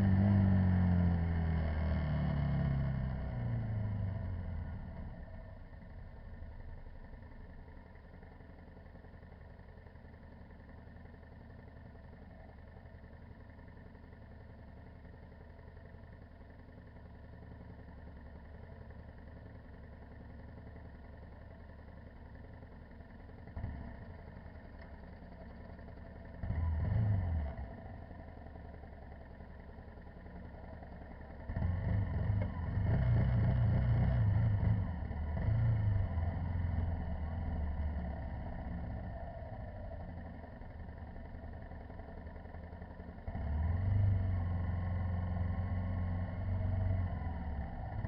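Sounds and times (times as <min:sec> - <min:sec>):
dirt bike engine revving: 0:00.0 - 0:05.0, 0:26.3 - 0:28.3, 0:30.8 - 0:48.0.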